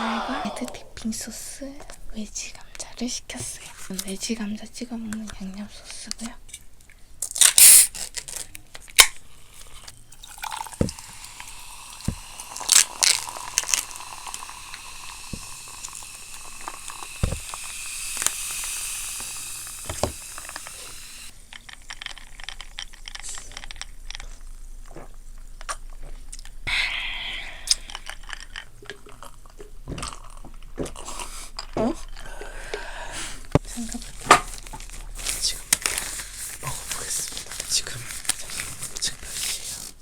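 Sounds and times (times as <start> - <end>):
steady hiss: 0.0 - 3.4, 7.4 - 8.4, 9.2 - 28.8, 32.6 - 40.0.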